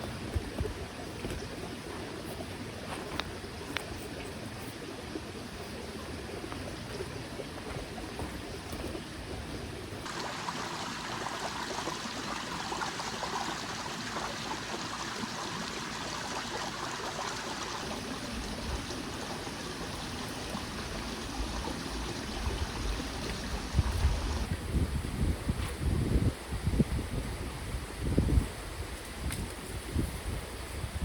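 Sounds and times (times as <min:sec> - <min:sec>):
stream flowing and trickling: 0:00.0 - 0:31.0.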